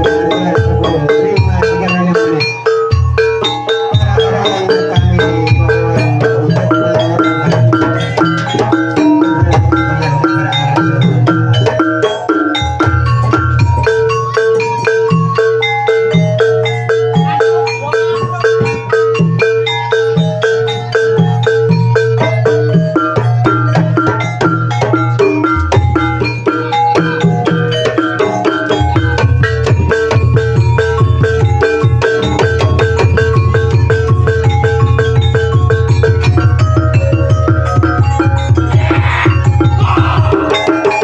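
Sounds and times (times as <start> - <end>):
mallet-struck gamelan notes: 0.0 - 41.0
held tone: 37.5 - 41.0.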